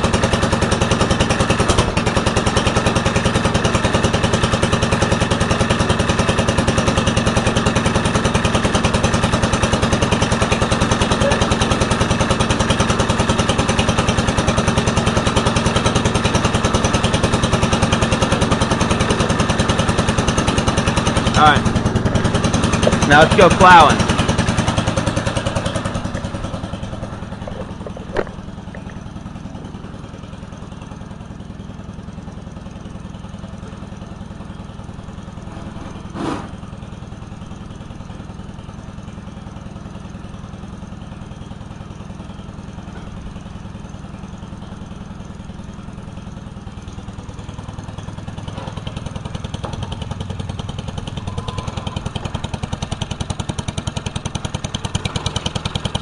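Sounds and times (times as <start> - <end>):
tractor engine running: 0.0 - 56.0
sharp knocks: 25.6 - 29.0.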